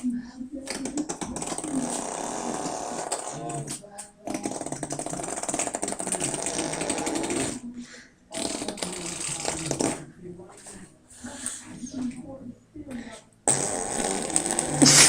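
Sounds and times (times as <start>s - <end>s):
child blowing fart-like buzz: 1.4s - 3.6s, 13.5s - 15.0s.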